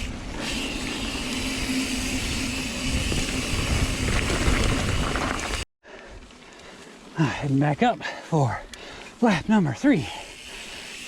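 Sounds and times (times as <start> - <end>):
bike rattling over ground: 0.0 - 5.6
wind over microphone: 0.0 - 5.6
bike tyre noise: 0.0 - 11.0.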